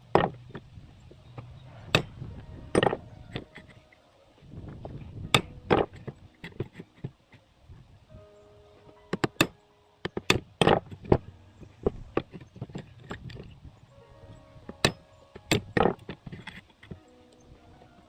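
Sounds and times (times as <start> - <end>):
faint background music: 0.0 - 18.0
metal tools clanking on workbench: 1.3 - 3.8, 9.1 - 13.6, 14.7 - 17.1.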